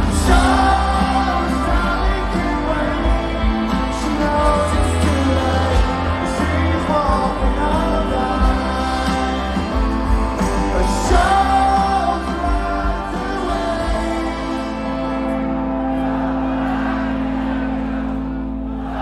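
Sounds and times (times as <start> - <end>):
person singing: 0.0 - 15.2
live rock band playing: 0.0 - 19.0.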